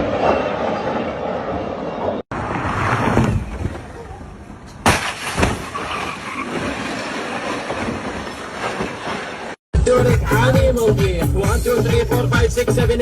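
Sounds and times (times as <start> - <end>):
vehicle road and wind noise: 0.0 - 9.6.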